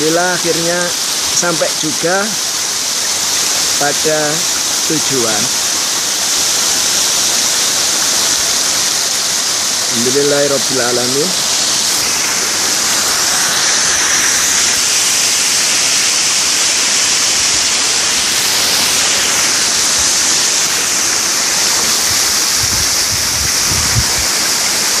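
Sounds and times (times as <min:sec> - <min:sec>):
waterfall pouring and splashing: 0:00.0 - 0:25.0.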